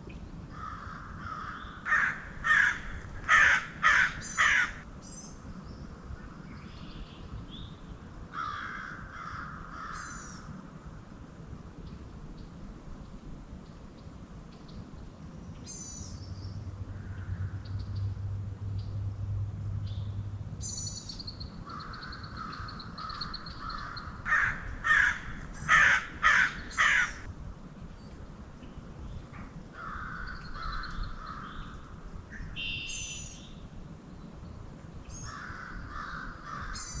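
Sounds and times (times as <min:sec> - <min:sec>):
raven cawing: 0:00.5 - 0:04.8, 0:08.3 - 0:10.5, 0:21.6 - 0:27.3, 0:29.7 - 0:31.8, 0:35.2 - 0:37.0
small birds chirping: 0:19.8 - 0:27.3.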